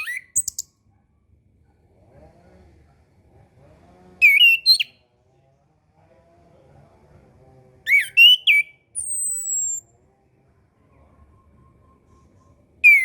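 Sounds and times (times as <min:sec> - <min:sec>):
thrush warbled whistles: 0:00.0 - 0:00.6, 0:04.2 - 0:04.9, 0:07.9 - 0:09.8
thin high bird whistle: 0:00.0 - 0:00.7, 0:07.9 - 0:09.8.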